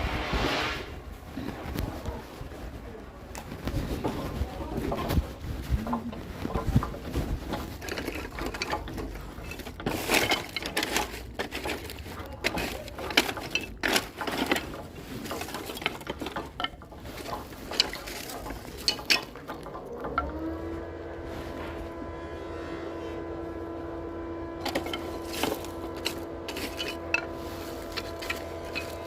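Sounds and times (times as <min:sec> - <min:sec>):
knocks and clatter: 0:01.2 - 0:20.7, 0:24.6 - 0:29.0
motor humming: 0:19.6 - 0:29.0.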